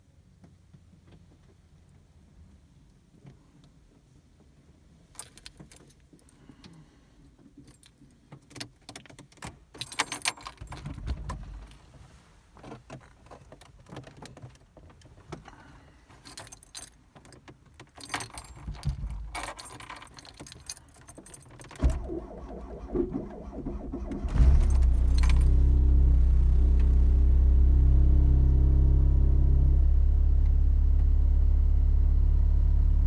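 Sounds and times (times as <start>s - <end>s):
car keys jangling: 5.1s - 6.5s, 7.6s - 11.8s, 15.4s - 25.8s.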